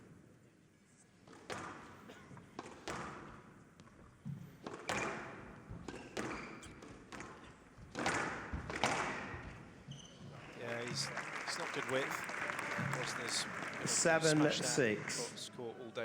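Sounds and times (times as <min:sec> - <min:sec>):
squash ball hitting rackets and walls: 0:01.3 - 0:09.7.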